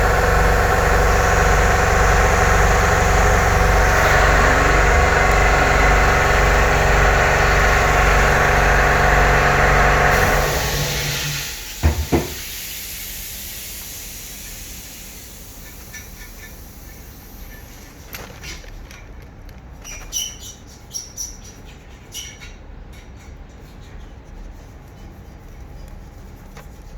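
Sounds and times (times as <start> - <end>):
engine idling: 0.0 - 11.7.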